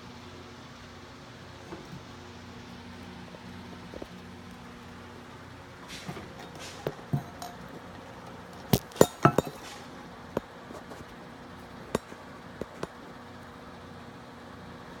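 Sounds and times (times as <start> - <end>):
hard objects clinking: 5.9 - 8.0, 8.6 - 10.0.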